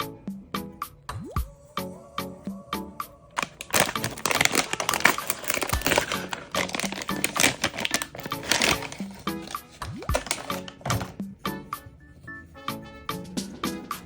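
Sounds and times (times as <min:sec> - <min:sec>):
background music: 0:00.0 - 0:14.0
plastic packaging crinkling: 0:03.4 - 0:11.2.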